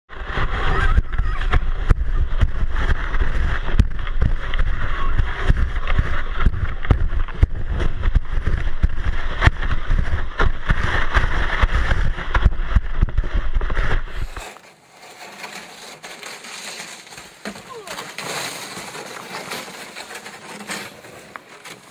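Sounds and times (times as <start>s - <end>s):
sled running over snow: 0.1s - 21.9s.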